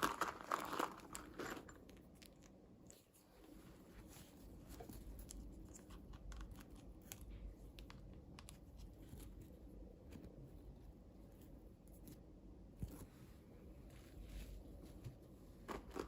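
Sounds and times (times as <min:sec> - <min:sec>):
packaging crinkling: 0:00.0 - 0:02.0.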